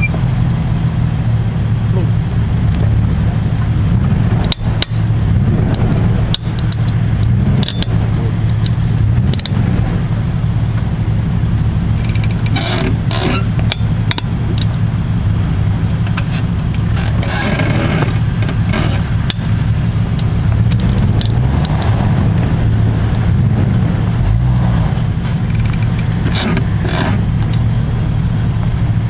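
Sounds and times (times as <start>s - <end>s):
engine running steadily: 0.0s - 29.0s
sharp clicks: 12.0s - 14.7s.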